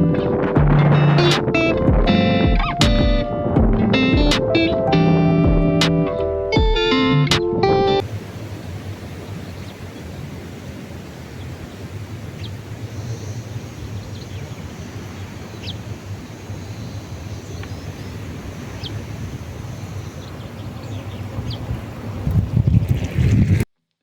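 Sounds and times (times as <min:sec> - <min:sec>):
wind: 0:00.0 - 0:06.4, 0:07.2 - 0:23.8
distant traffic: 0:08.0 - 0:22.3
small birds chirping: 0:09.2 - 0:10.4, 0:11.3 - 0:22.7.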